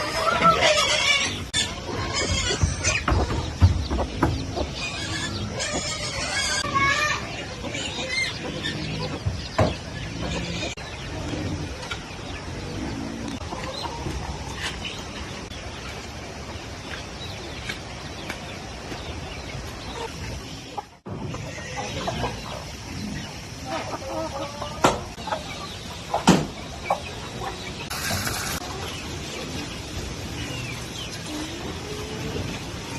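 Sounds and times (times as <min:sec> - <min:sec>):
chickens clucking: 0:00.0 - 0:32.9
steady hiss: 0:27.8 - 0:32.9.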